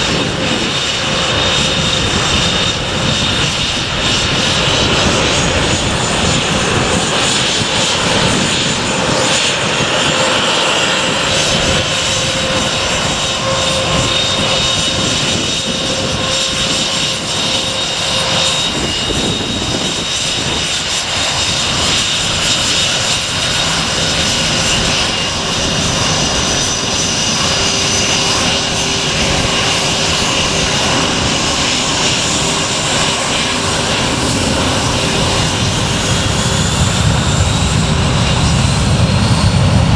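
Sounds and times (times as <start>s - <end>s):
airliner engines running: 0.0s - 39.9s.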